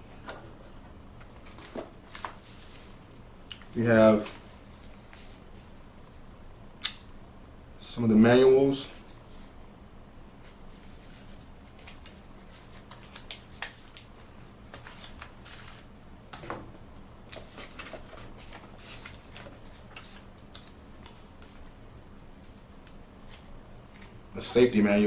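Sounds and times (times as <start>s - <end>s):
paper and packaging rustling: 1.3s - 3.0s, 10.4s - 15.9s, 17.3s - 24.7s.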